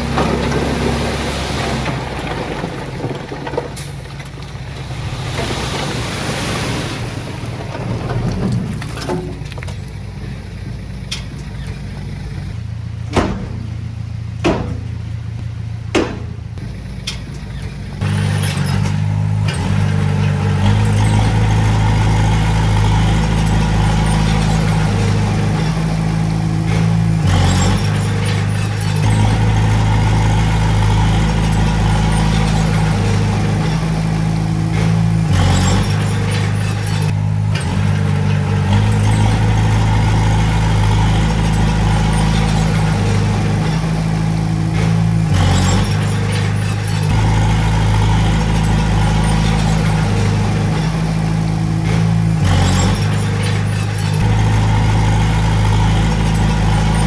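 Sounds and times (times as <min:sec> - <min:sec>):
heavy diesel engine running: 0:00.0 - 0:57.0
brief metal clanks: 0:13.1 - 0:15.2, 0:15.9 - 0:17.7.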